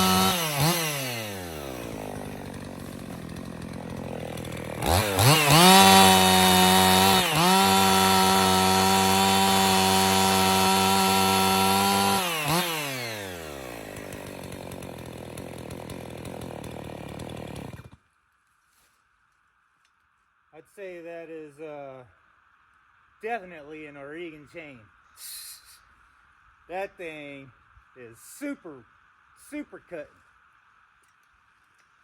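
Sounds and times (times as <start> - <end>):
chainsaw revving: 0.0 - 18.0.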